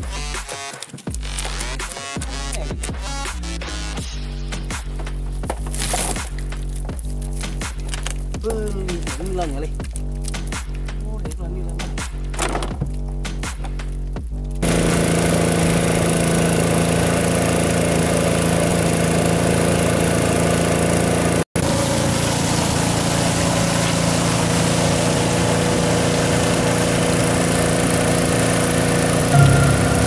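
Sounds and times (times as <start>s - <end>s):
small boat engine running: 14.6s - 30.0s.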